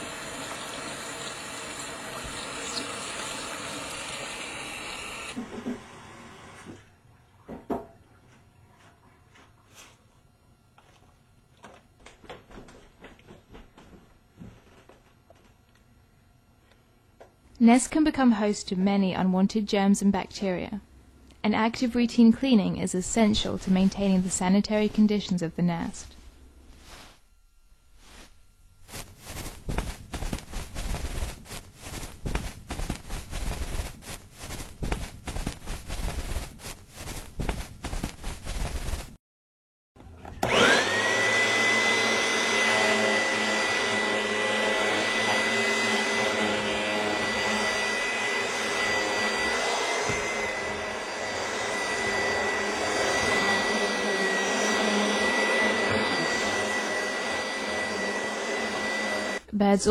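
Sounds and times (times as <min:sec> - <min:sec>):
vacuum cleaner whine: 0:00.0 - 0:06.8, 0:40.3 - 0:59.5.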